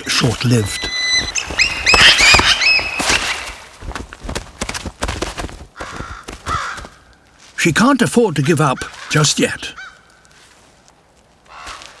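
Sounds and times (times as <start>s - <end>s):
eagles piping cries: 0.0s - 3.8s.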